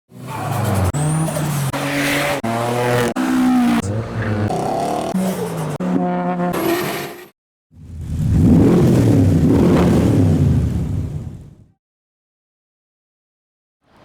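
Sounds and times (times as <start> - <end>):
car engines revving: 0.1 - 6.9, 7.8 - 11.6.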